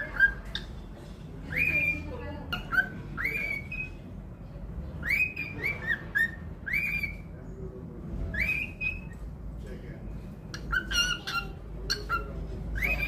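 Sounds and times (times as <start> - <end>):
cockatiel whistling: 1.5 - 4.0, 5.0 - 7.3, 8.3 - 9.2, 10.6 - 13.0.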